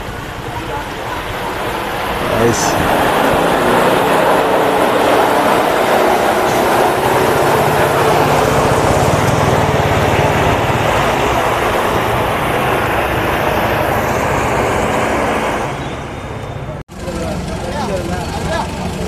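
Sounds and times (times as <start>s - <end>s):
off-road engine at high revs: 0.0s - 16.0s, 16.8s - 19.0s.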